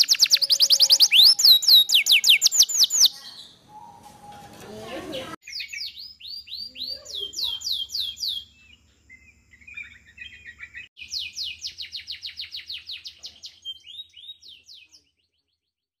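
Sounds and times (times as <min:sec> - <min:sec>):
songbird singing: 0:00.0 - 0:15.8.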